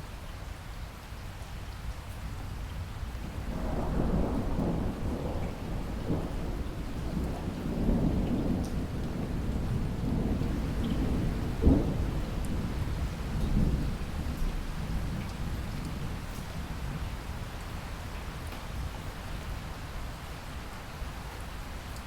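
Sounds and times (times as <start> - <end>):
steady rain: 0.0 - 22.0
rolling thunder: 3.2 - 16.2.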